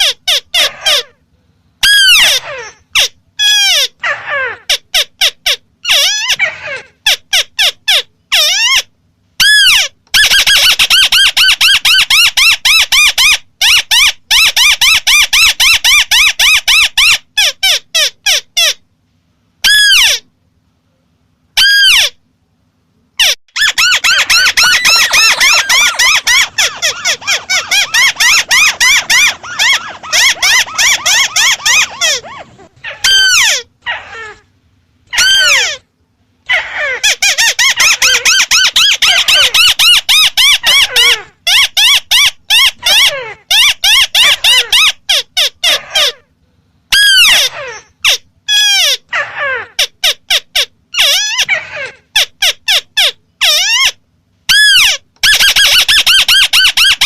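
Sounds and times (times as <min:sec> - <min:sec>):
bird calling repeated notes: 0:23.2 - 0:34.4.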